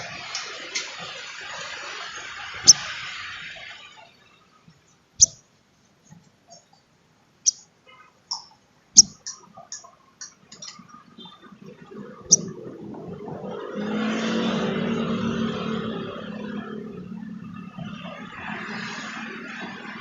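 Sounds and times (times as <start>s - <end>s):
bird chirping: 2.6s - 2.8s, 5.2s - 5.4s, 8.3s - 9.2s, 12.3s - 12.5s.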